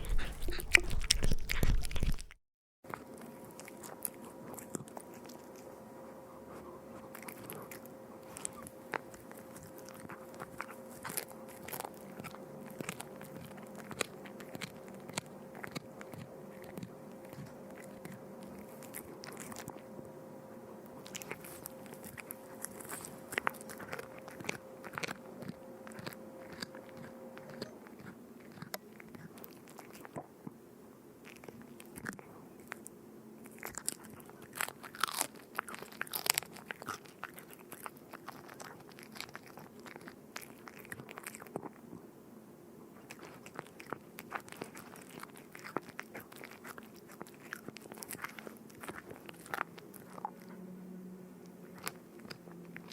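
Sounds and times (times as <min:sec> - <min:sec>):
faint steady hum: 0:00.0 - 0:02.4, 0:03.2 - 0:52.9
crunchy food being chewed: 0:00.0 - 0:05.7, 0:06.5 - 0:20.2, 0:20.8 - 0:30.6, 0:31.2 - 0:42.1, 0:43.0 - 0:50.7, 0:51.4 - 0:52.9.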